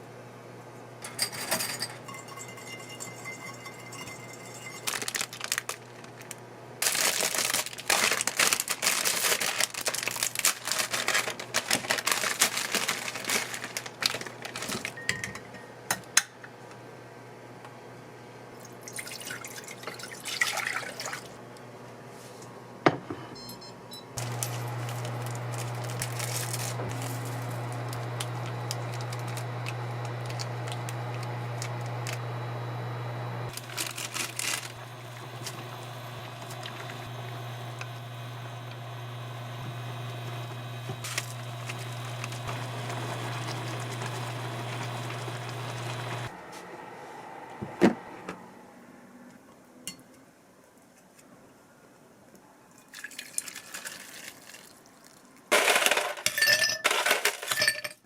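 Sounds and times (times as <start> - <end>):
small appliance humming: 0.8 - 16.0, 24.2 - 48.7
liquid noise: 33.5 - 38.8
kitchen clicks and rustling: 55.6 - 58.0.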